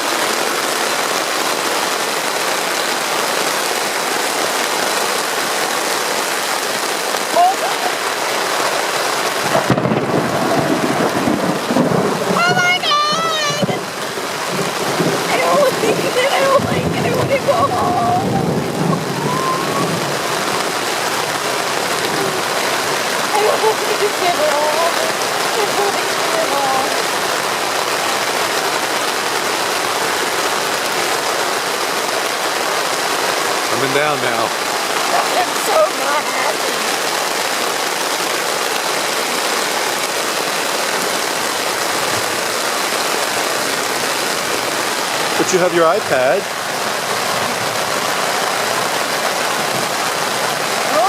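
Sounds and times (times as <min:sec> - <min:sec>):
heavy rain on a tent: 0:00.0 - 0:51.0
thunder rumbling: 0:09.2 - 0:28.1.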